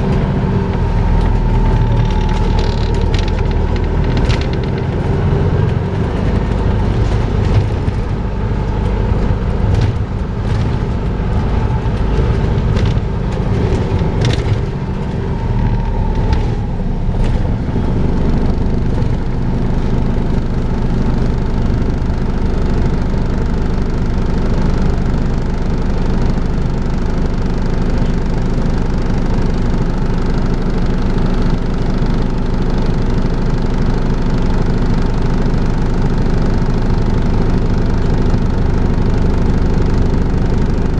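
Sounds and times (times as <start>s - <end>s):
sharp rattles and knocks: 0.0s - 17.8s
bus engine droning: 0.0s - 40.9s.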